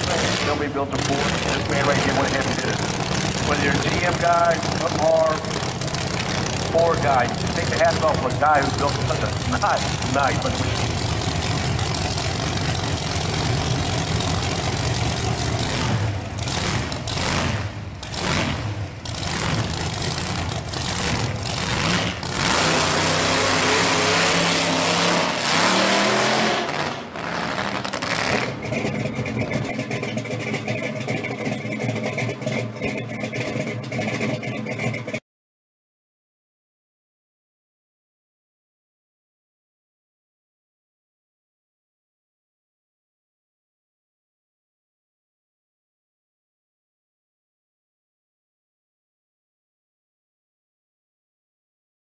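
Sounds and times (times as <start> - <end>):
car engine at full throttle: 0.0 - 35.2
car engine revving: 0.0 - 35.2.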